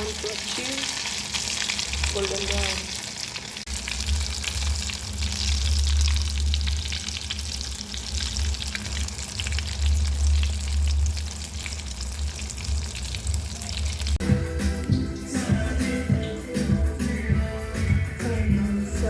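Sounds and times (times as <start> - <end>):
food sizzling in hot oil: 0.0 - 16.6
low hum: 3.7 - 18.9.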